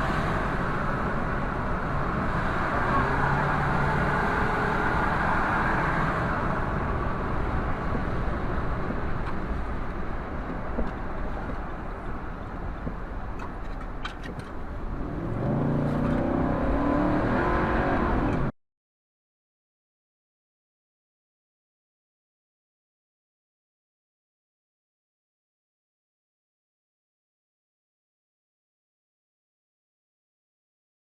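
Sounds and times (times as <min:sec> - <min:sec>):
car engine: 0:00.0 - 0:18.5
road noise: 0:00.0 - 0:18.5.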